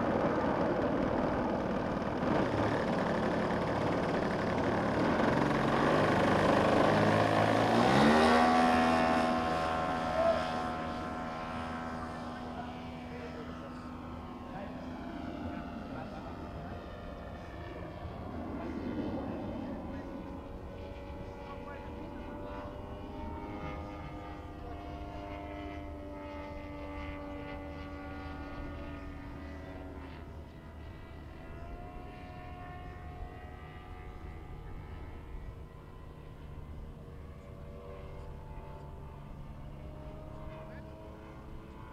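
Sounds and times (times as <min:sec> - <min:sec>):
model plane engine and propeller: 0:00.0 - 0:41.9.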